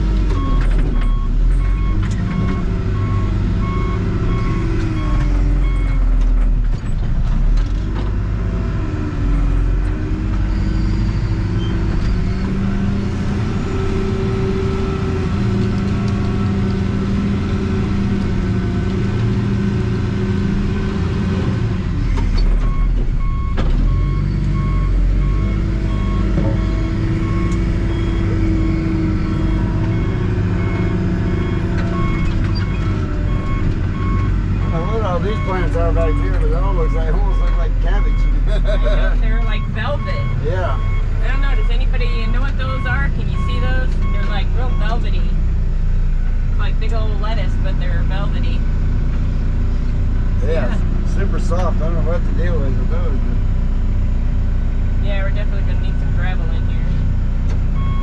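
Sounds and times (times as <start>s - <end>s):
backhoe engine revving: 0.0s - 58.0s
reversing alarm beeping: 0.3s - 6.1s, 22.2s - 45.4s, 57.8s - 58.0s.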